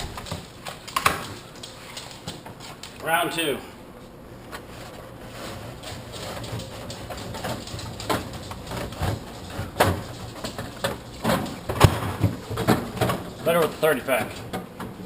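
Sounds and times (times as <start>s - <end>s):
cans knocking and rolling: 6.0s - 13.5s.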